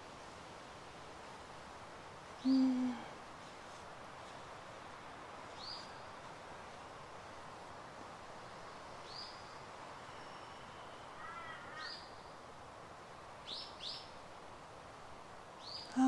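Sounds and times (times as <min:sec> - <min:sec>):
steady background hiss: 0:00.0 - 0:16.0
faint bird calls: 0:02.4 - 0:03.1, 0:09.0 - 0:12.4.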